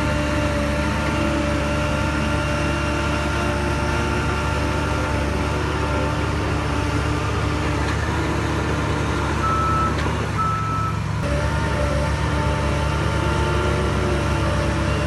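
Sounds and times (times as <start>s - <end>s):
heavy diesel engine running: 0.0s - 15.0s
reversing alarm beeps: 9.4s - 11.0s.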